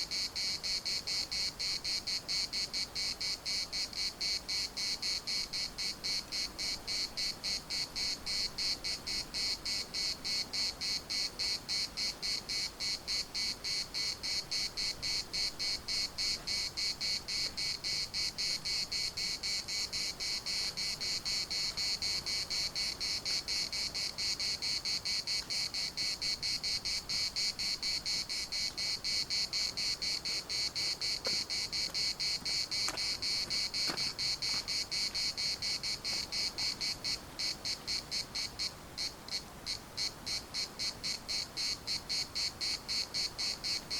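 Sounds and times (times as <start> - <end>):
cicadas buzzing: 0.0 - 43.9.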